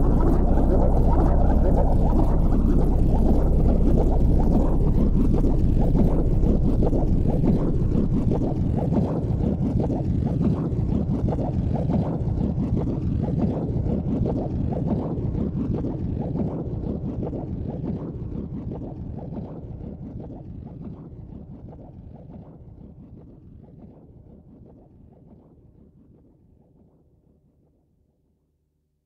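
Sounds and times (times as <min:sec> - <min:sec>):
car engine rumble: 0:00.0 - 0:08.9.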